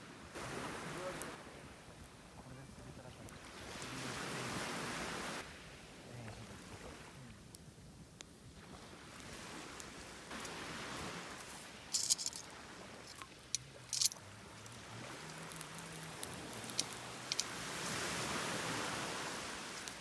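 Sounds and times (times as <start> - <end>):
waves washing on shore: 0.0 - 7.6, 8.4 - 20.0
sharp clicks and clatters: 13.1 - 14.8, 15.4 - 17.5.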